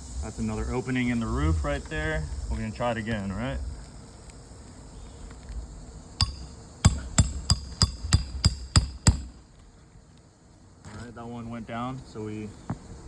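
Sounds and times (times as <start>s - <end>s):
hammer blows on metal tool: 6.2s - 9.4s.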